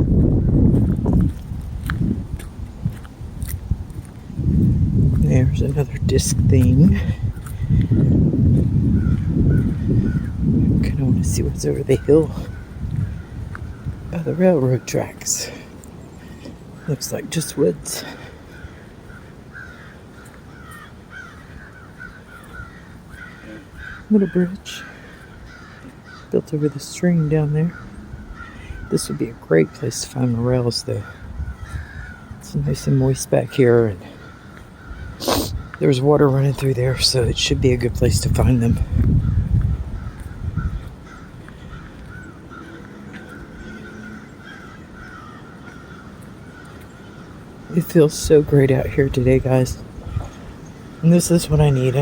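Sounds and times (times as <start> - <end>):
low steady background noise: 0.0 - 52.0
birds calling: 4.2 - 52.0
crows cawing: 7.4 - 8.2, 8.9 - 10.4, 12.1 - 14.1, 18.0 - 26.9, 27.6 - 29.0, 31.0 - 32.4, 34.0 - 35.9, 39.2 - 47.8, 49.9 - 52.0.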